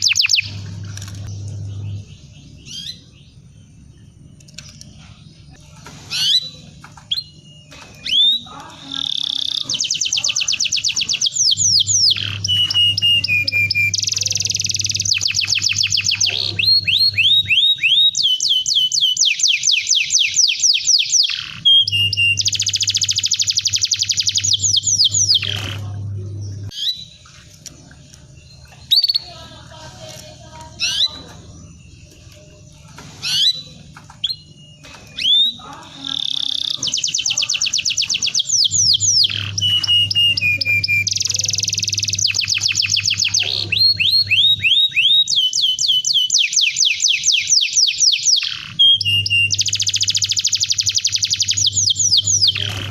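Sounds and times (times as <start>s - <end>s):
canary chirps: 0.0s - 52.9s
canary trilling: 0.0s - 52.9s.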